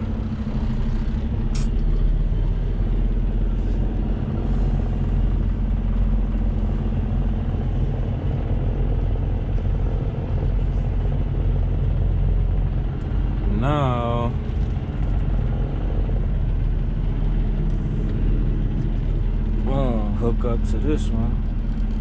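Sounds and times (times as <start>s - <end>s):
truck diesel engine droning: 0.0s - 22.0s
short sharp click: 1.5s - 1.8s.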